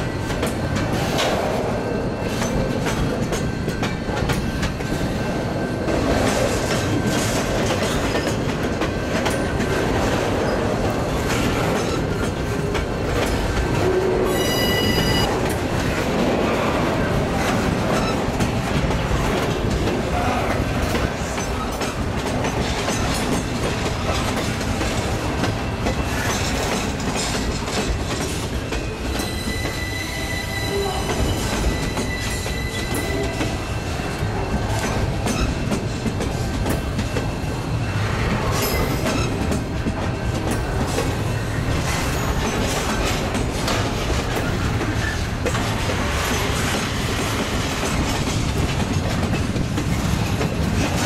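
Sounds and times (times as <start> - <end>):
train wheels clicking over rail joints: 0.0 - 51.0
high wheel squeal: 14.3 - 15.3, 29.2 - 33.6.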